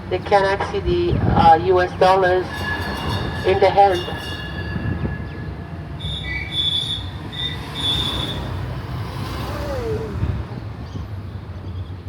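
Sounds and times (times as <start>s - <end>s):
road train rumbling: 0.0s - 12.0s
high-pitched squeals: 1.4s - 11.0s.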